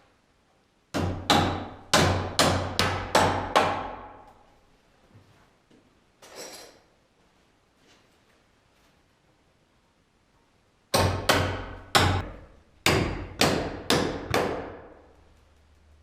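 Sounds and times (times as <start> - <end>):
soft rustle: 4.5 - 9.6.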